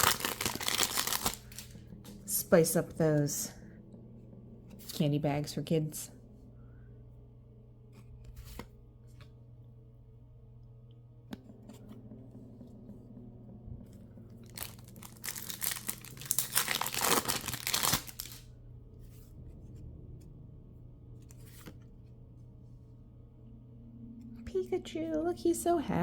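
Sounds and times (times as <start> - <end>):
wrapper tearing open: 0.0 - 1.7, 14.4 - 18.5
packet handling rustles and clicks: 0.0 - 2.2, 14.4 - 18.5.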